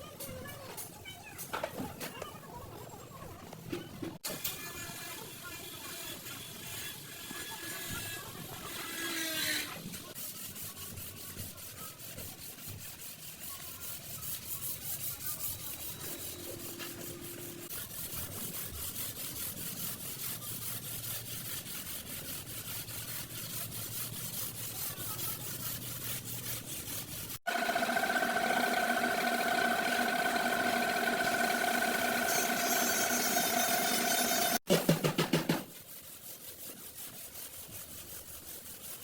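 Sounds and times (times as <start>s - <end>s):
scraping on sheet steel: 4.2s - 34.6s, 35.7s - 39.0s.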